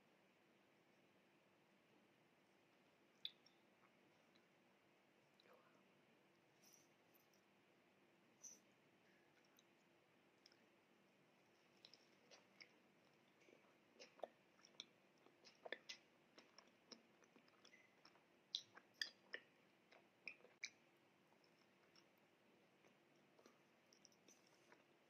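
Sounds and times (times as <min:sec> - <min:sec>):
wet mouth clicks and smacks: 0:03.2 - 0:03.6, 0:11.8 - 0:20.8.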